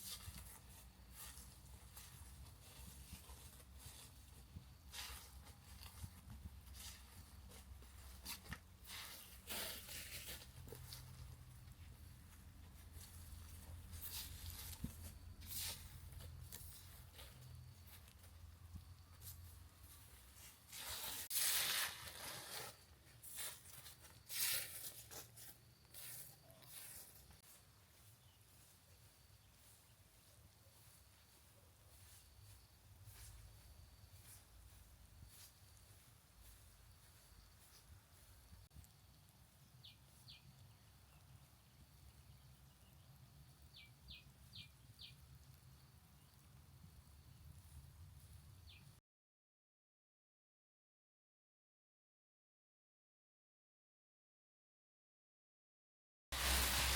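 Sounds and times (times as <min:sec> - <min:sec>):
rustling and tearing: 0:20.4 - 0:25.4.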